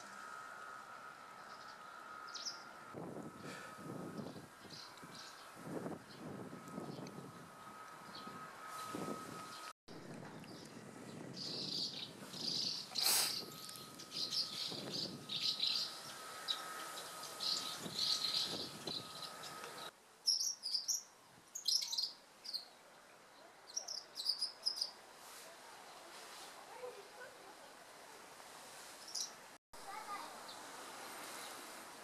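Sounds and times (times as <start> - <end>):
martins twittering chirps: 11.4 - 22.7.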